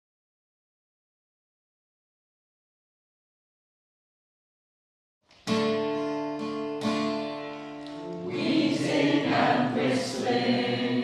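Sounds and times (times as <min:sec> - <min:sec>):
acoustic guitar chords strummed: 0:05.4 - 0:10.9
group of singers: 0:08.0 - 0:11.0.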